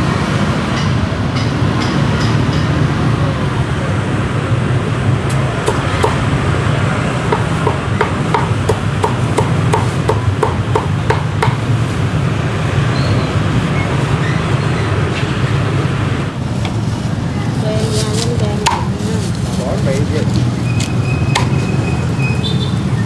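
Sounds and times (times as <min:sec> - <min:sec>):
cleaver chopping meat: 0:05.3 - 0:06.5, 0:07.2 - 0:11.8, 0:20.8 - 0:21.6.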